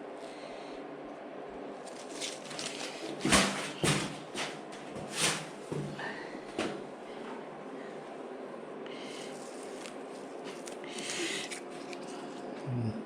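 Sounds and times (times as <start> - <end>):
low steady hum: 0.0 - 13.0
paper crackling and ripping: 1.8 - 4.0, 9.4 - 12.4.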